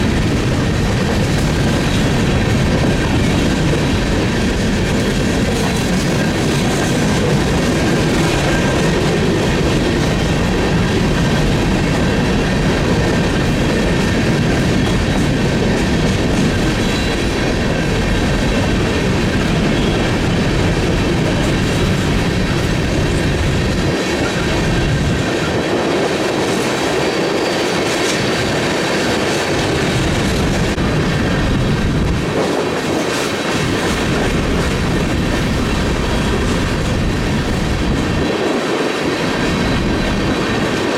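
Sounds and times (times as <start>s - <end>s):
high wheel squeal: 27.0s - 28.3s.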